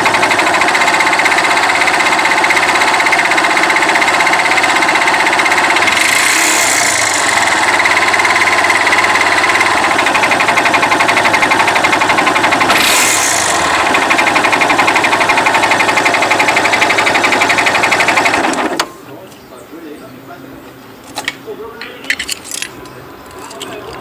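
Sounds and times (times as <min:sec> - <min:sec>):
motorcycle engine running: 0:00.0 - 0:18.8
strange mechanical noise: 0:00.0 - 0:24.0.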